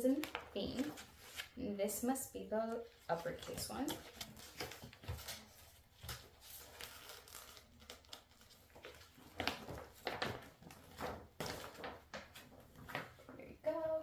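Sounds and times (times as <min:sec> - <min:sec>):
paper poster rustling: 0:00.0 - 0:14.0.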